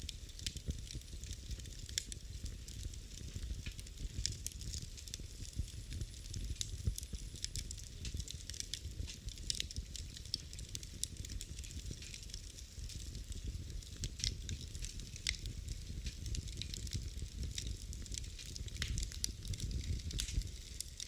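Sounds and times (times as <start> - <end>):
burning wood crackling and popping: 0.0 - 21.0
low rumble of flames: 0.0 - 21.0.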